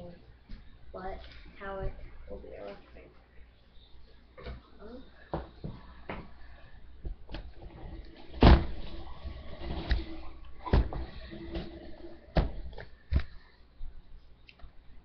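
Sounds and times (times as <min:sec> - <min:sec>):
objects knocking and clunking: 0:07.0 - 0:13.3.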